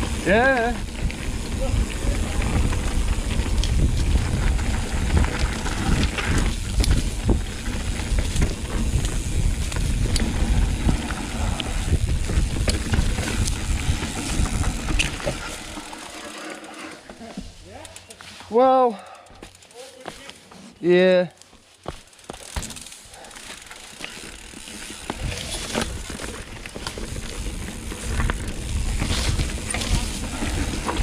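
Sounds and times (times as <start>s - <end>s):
wind rumble on microphone: 0.0s - 15.8s, 25.1s - 31.0s
bike rattling and clicking: 0.0s - 20.6s, 21.4s - 31.0s
bike tyre noise: 0.0s - 31.0s.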